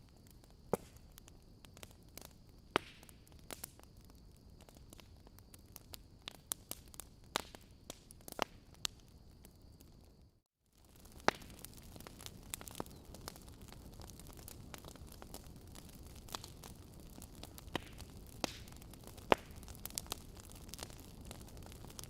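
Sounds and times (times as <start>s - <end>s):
log fire crackling: 0.0s - 22.0s.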